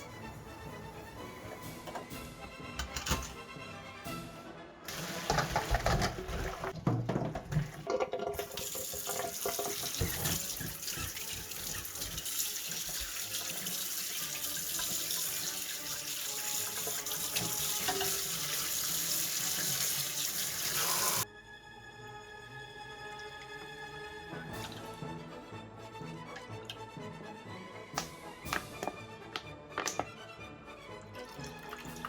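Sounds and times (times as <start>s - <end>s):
background music: 0.0s - 7.7s, 8.3s - 32.0s
tap water running into sink: 4.9s - 21.2s, 31.1s - 32.0s.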